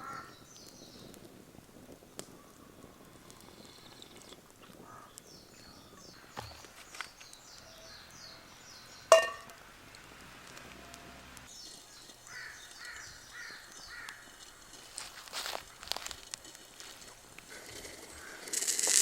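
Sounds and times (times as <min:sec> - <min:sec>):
sharp metallic clink: 0:09.1 - 0:09.6.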